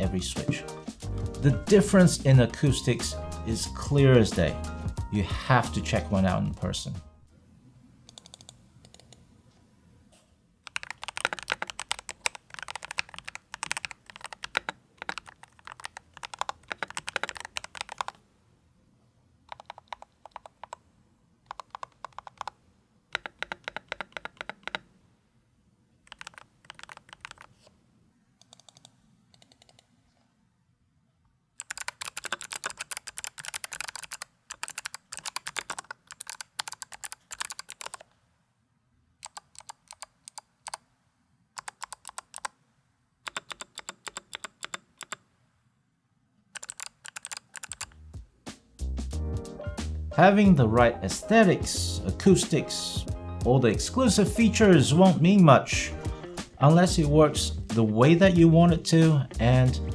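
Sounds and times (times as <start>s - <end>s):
mechanical keyboard typing: 8.1s - 9.2s, 10.6s - 18.2s, 19.5s - 20.8s, 21.5s - 24.9s, 26.0s - 27.6s, 28.4s - 29.8s, 31.6s - 38.1s, 39.2s - 40.8s, 41.6s - 42.5s, 43.3s - 45.2s, 46.6s - 48.0s.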